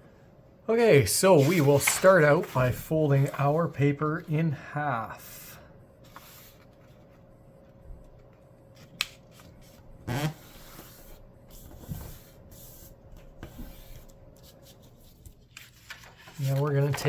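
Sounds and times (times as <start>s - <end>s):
paper swishes: 1.3s - 3.4s, 9.1s - 17.0s
paper rubbing and rustling: 1.3s - 3.7s, 8.8s - 17.0s.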